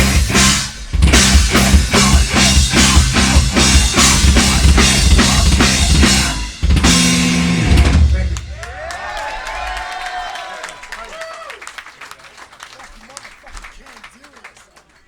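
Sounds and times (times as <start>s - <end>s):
low bass line: 0.0s - 8.6s
metal band playing loud: 0.0s - 9.8s
drum kit pounding: 0.0s - 10.2s.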